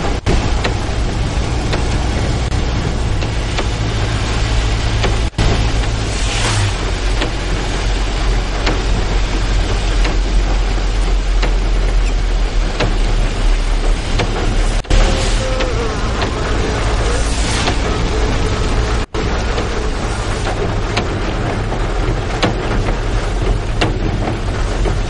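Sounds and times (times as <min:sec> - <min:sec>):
low rumble: 0:00.0 - 0:25.0
steady rain: 0:00.0 - 0:25.0.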